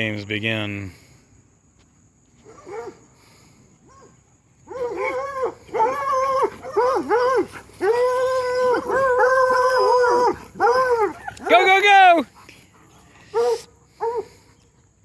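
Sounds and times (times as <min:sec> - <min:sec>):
hound dogs baying and howling: 0:02.4 - 0:03.1, 0:03.8 - 0:14.8.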